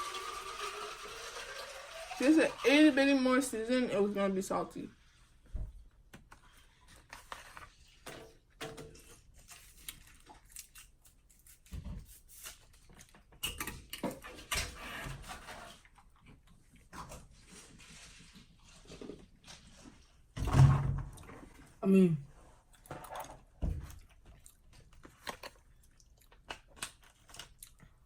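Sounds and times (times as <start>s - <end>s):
people chewing and crunching: 9.2s - 11.7s, 22.5s - 28.0s.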